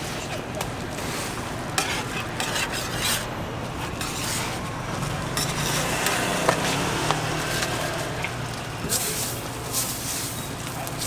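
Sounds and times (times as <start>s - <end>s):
metal utensil scraping metal: 1.0s - 8.1s.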